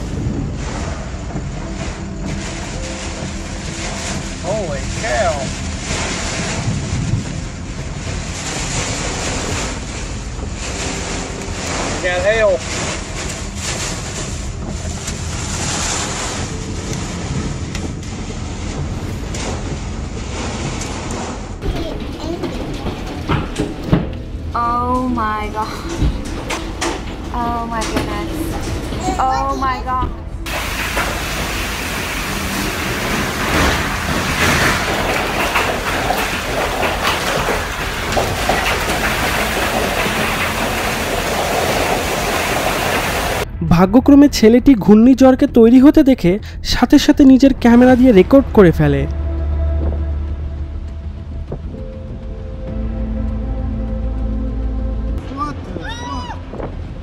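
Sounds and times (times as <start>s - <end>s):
wind buffeting microphone: 0.0s - 12.0s, 12.6s - 43.6s, 46.5s - 52.8s
hailstones clicking on truck: 0.0s - 29.8s, 30.4s - 43.5s
loud rushing rain: 0.0s - 43.5s.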